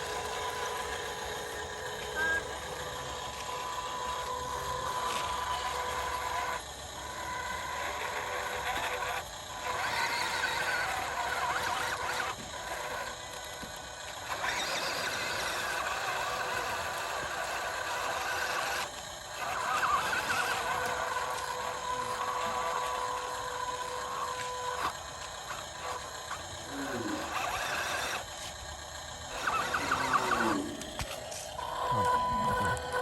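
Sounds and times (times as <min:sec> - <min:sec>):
small electric motors whining: 0:00.0 - 0:33.0.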